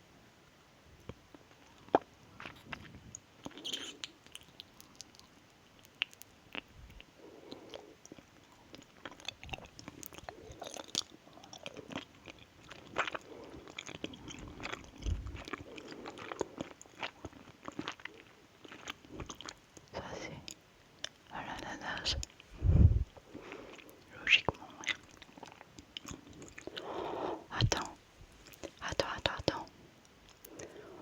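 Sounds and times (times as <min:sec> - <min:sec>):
biting and chewing: 0:01.8 - 0:19.6.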